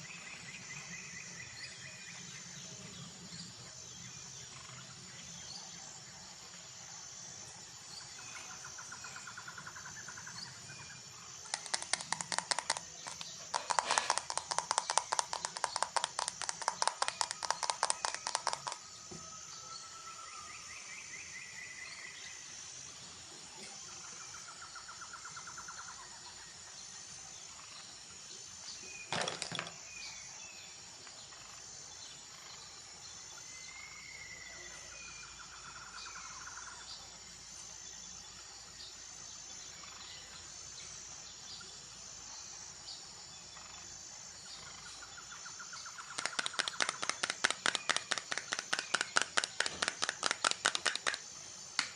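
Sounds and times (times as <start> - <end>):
bird calls and trills: 0.0 - 22.5, 23.1 - 51.9
steady outdoor hiss: 0.0 - 51.9
fast run of taps: 11.5 - 18.8, 46.1 - 51.9.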